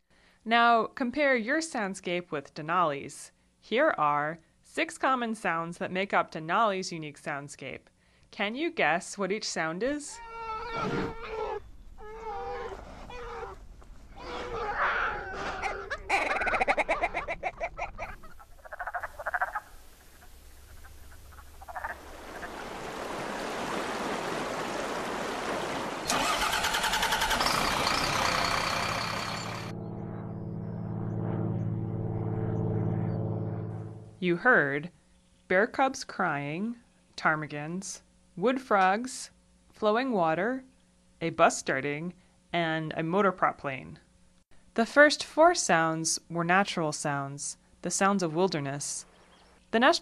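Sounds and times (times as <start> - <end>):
ptarmigans calling: 10.0 - 13.6, 14.2 - 22.7, 26.1 - 29.7
bear cubs crying: 10.1 - 22.6
frogs clucking: 15.6 - 22.7
flowing water: 19.9 - 27.4
bus engine starting: 26.1 - 30.6
propeller plane motor droning: 26.1 - 34.2.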